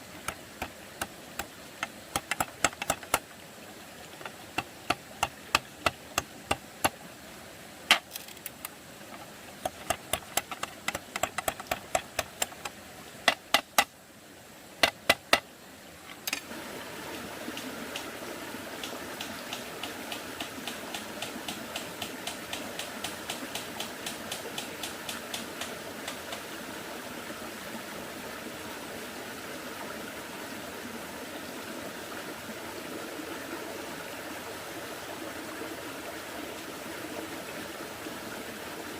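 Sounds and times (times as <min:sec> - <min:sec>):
sharp irregular knocks and taps: 0:00.2 - 0:03.2, 0:04.2 - 0:07.0, 0:09.6 - 0:13.9, 0:14.8 - 0:15.4.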